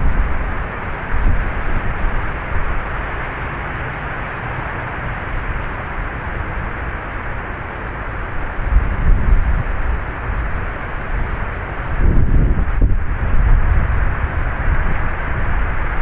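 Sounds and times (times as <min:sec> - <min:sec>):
wind buffeting microphone: 0:00.0 - 0:03.1, 0:08.4 - 0:16.0
heavy rain pouring: 0:00.0 - 0:16.0.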